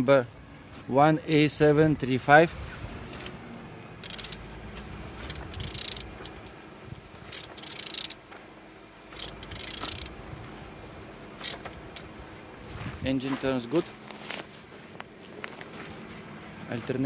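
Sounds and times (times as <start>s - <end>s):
ratchet wrench clicking: 4.0s - 4.5s, 5.2s - 6.6s, 7.3s - 8.2s, 9.1s - 10.2s, 11.4s - 12.1s.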